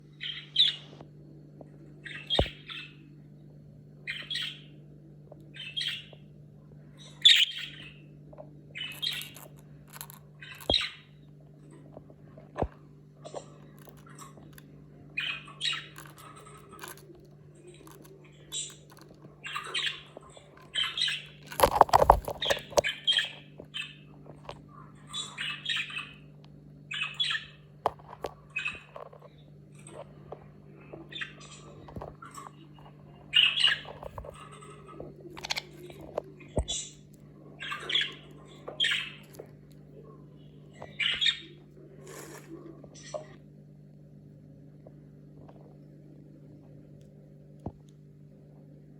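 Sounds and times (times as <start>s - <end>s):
steady low hum: 0.0s - 48.9s
budgerigar chirping and squawking: 4.1s - 4.7s, 7.2s - 8.0s, 10.4s - 11.1s, 37.6s - 39.2s.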